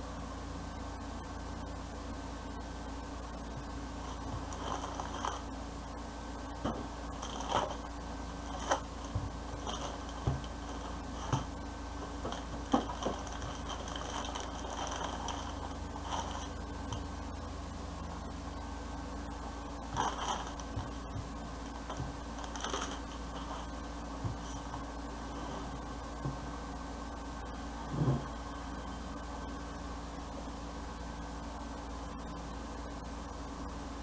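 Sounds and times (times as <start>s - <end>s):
steady low hum: 0.0s - 34.0s
hands handling packaging: 4.0s - 5.5s, 6.6s - 17.1s, 20.0s - 24.5s.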